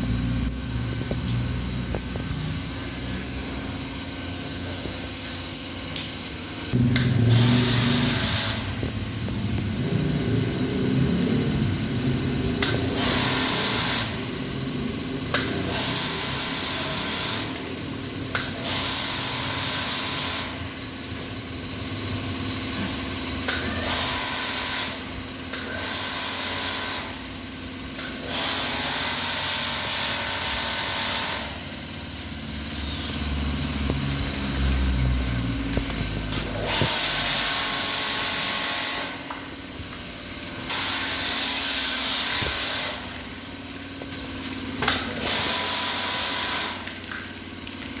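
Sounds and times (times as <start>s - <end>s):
pressure washer spraying water: 6.8s - 11.4s, 12.6s - 14.4s, 15.3s - 20.6s, 23.8s - 27.2s, 28.0s - 31.7s, 35.9s - 39.8s, 40.6s - 43.8s, 44.5s - 48.0s.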